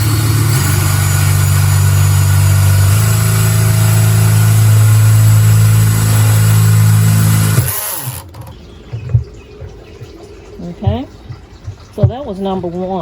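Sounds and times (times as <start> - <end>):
power drill cutting through pot: 0.0 - 8.5.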